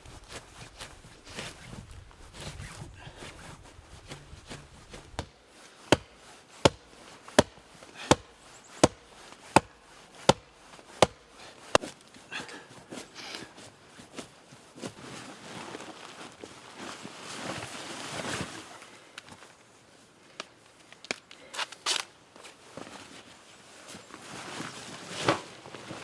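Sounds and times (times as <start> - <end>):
axe chopping wood: 4.0 - 11.9.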